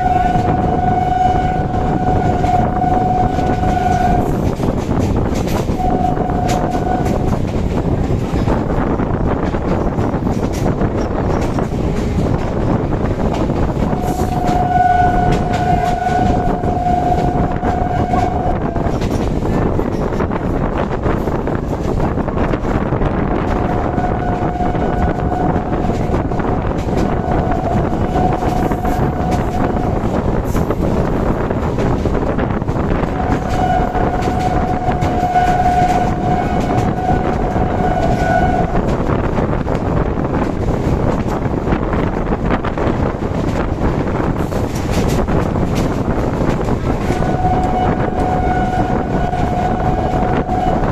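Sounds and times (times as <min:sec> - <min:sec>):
train horn blast: 0:00.0 - 0:04.8, 0:05.6 - 0:07.4, 0:13.8 - 0:19.0, 0:23.4 - 0:30.5, 0:32.8 - 0:39.2, 0:47.0 - 0:50.9
train rumble and clatter: 0:00.0 - 0:50.9.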